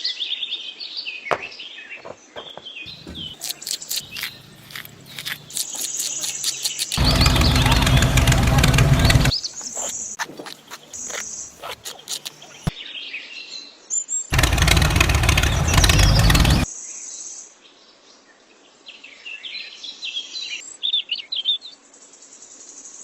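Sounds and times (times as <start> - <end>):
birds chirping: 1.3 - 12.7, 14.3 - 16.7
small engine running: 2.9 - 9.9, 14.3 - 16.7.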